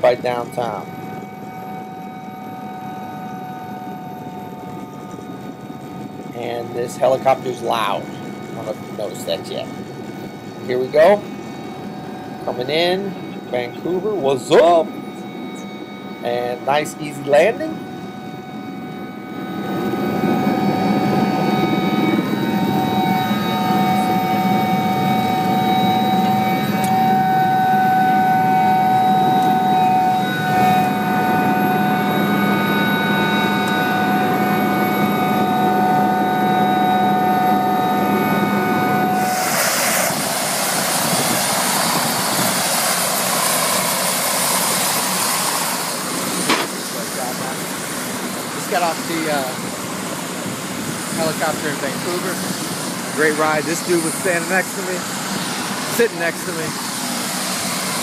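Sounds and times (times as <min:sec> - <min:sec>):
helicopter engine and rotor whine: 0:00.0 - 0:58.0
loud even hiss: 0:39.2 - 0:42.0.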